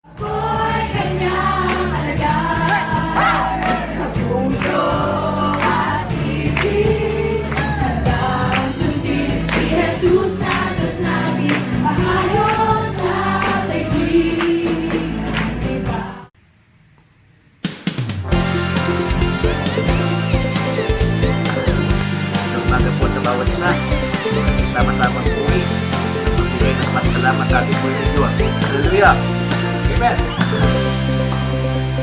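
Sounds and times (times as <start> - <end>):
choir singing worship music: 0.1 - 16.4
band with bass and drums: 0.2 - 16.2, 17.9 - 32.0.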